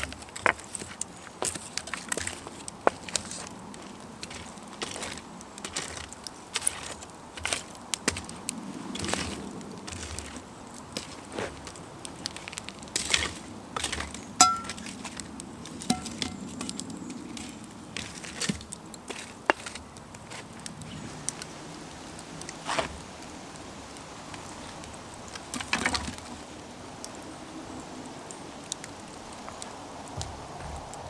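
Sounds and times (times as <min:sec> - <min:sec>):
campfire crackling: 0:00.0 - 0:31.0
short ringing clinks: 0:14.4 - 0:14.8, 0:15.9 - 0:16.4.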